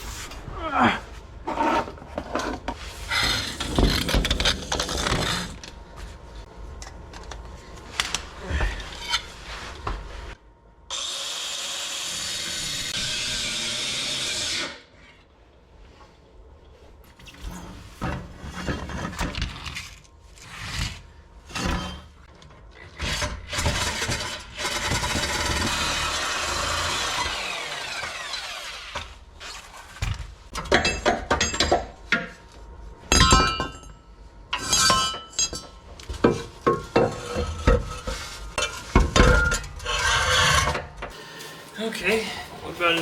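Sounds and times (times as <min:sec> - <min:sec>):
power tool running: 0:23.8 - 0:29.1, 0:41.1 - 0:43.0.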